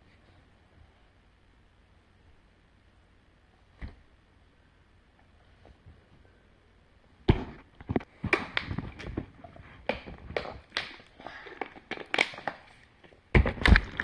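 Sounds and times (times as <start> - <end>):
candy crinkling and clicking: 8.0 - 14.0.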